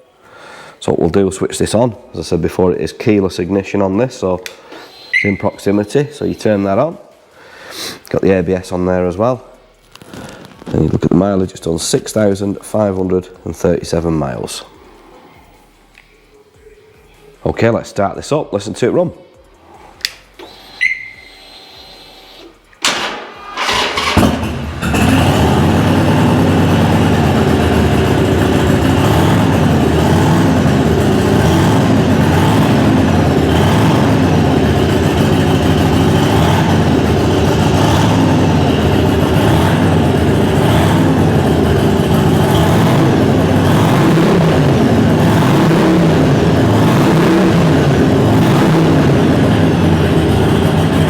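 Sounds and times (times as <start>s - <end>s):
motorcycle engine idling and revving: 23.5s - 51.0s.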